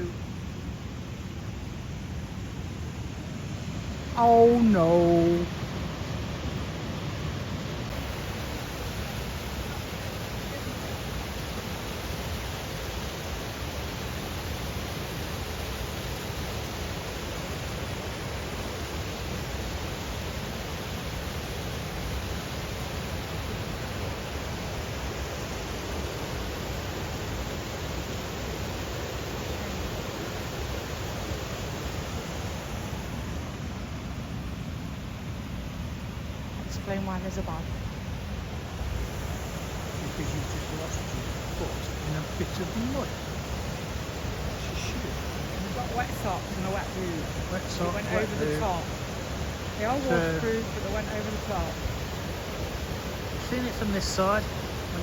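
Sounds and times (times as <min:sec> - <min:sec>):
waterfall and river rapids rushing: 0:00.0 - 0:55.0.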